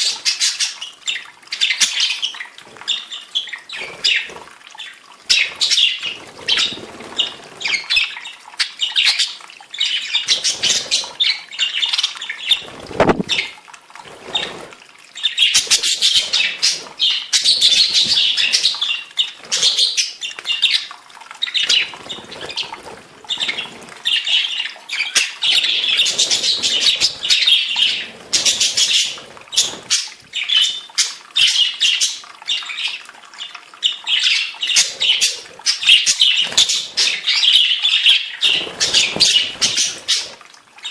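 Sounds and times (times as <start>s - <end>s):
budgerigars chattering: 21.5s - 30.8s, 33.9s - 40.9s.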